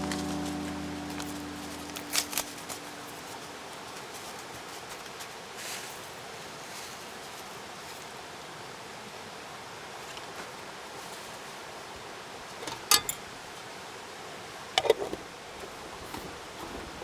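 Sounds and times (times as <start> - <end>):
soft crackles and rustles: 0.0 - 8.2, 14.8 - 17.0.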